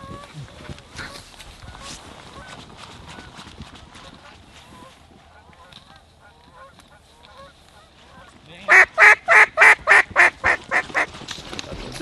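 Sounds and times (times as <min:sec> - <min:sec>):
distant geese and ducks calling: 0:00.0 - 0:11.1
loud duck quacking: 0:08.7 - 0:11.1.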